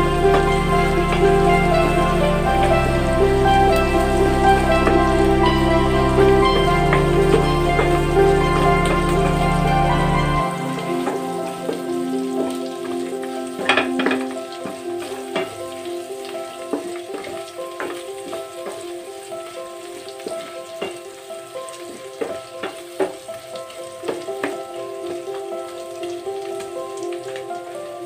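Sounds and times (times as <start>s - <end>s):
background music with held notes: 0.0s - 28.0s
meat sizzling in a pan: 10.8s - 28.0s.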